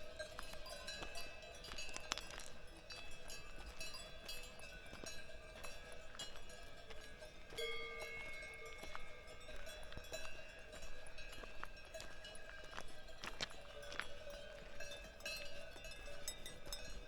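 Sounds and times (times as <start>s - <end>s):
cowbells clanking: 0.0s - 17.0s
footsteps crunching on trail: 0.3s - 15.0s.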